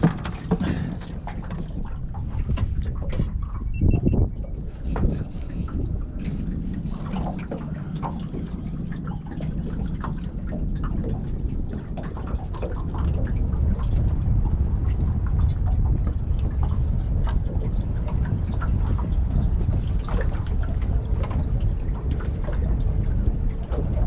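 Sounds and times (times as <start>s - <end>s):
water lapping against a boat: 0.0s - 24.0s
wind rumble on microphone: 0.0s - 24.0s.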